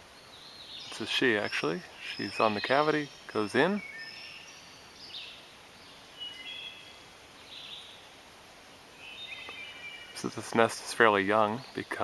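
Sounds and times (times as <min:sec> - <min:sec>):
wild birds chirping: 0:00.0 - 0:12.0
woodland background: 0:00.0 - 0:12.0.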